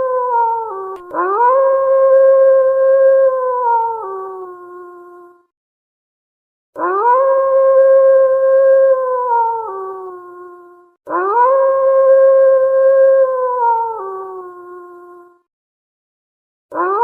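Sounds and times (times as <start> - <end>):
wolf howling: 0.0 - 4.5, 6.8 - 10.5, 11.1 - 15.0.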